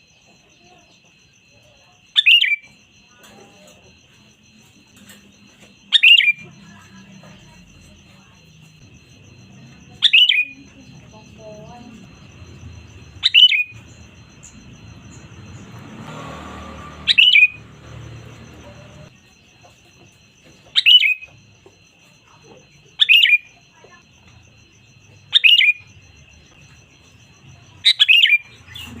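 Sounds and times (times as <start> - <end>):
faint steady high tone: 0.0 - 29.0
bird calling downward notes: 9.3 - 19.1.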